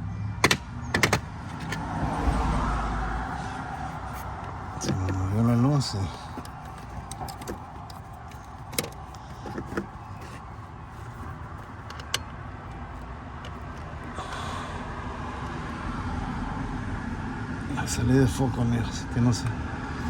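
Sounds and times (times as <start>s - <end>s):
tools clicking and tapping: 0.4s - 1.8s, 4.1s - 14.2s.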